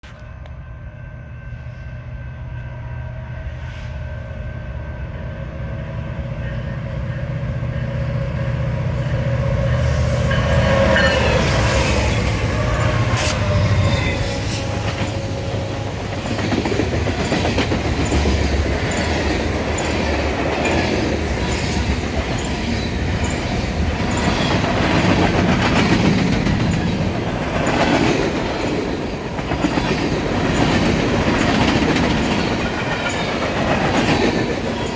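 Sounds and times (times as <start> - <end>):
diesel locomotives approaching: 0.0 - 34.9.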